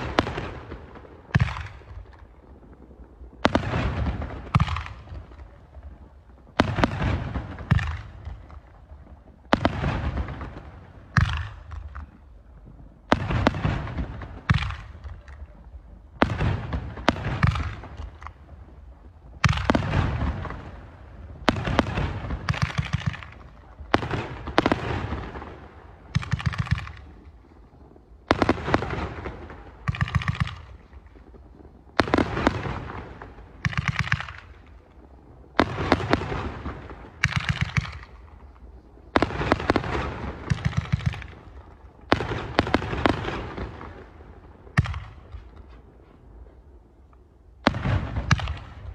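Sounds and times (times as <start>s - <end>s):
fireworks bangs: 0.0s - 48.9s
fireworks crackling: 0.0s - 48.9s.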